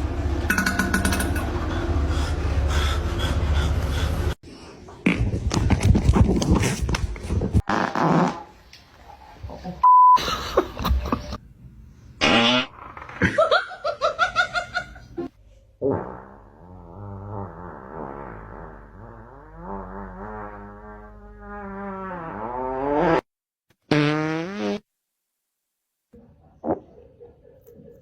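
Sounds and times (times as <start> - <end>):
fart sounds: 5.0 - 5.6, 7.6 - 8.6, 12.2 - 13.3, 15.8 - 23.3, 23.9 - 24.9, 26.6 - 26.9.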